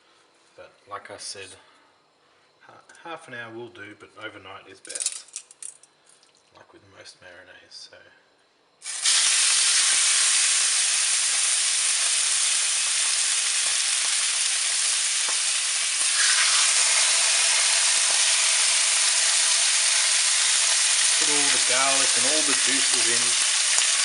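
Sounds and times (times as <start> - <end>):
chicken sizzling in a frying pan: 8.8 - 24.0.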